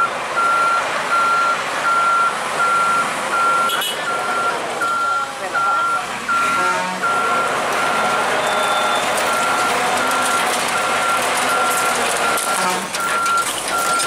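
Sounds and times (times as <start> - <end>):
traffic noise: 0.0 - 14.0
vehicle reversing alarm beeping: 0.0 - 14.0
crowd voices: 3.3 - 12.9.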